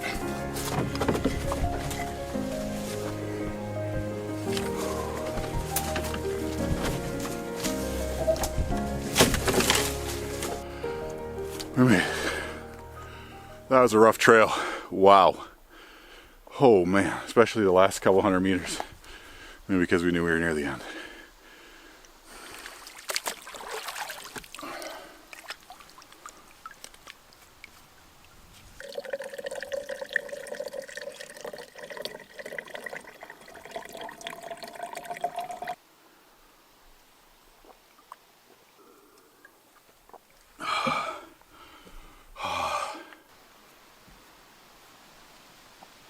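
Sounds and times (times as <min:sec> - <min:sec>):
water pouring and trickling: 0:22.5 - 0:35.8.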